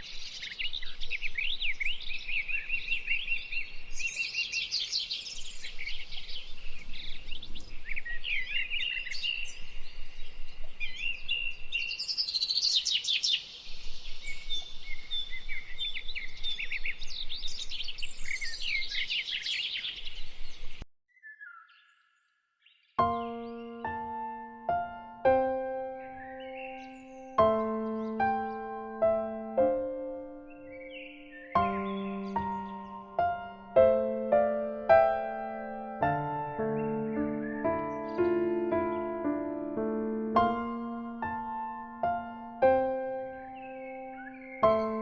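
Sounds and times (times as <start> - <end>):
birds singing and calling: 0.0 - 45.0.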